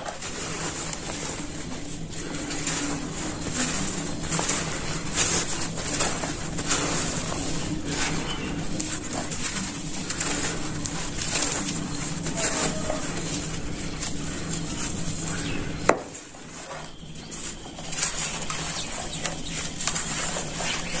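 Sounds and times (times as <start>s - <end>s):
dry material crackling and crunching: 0.0s - 21.0s.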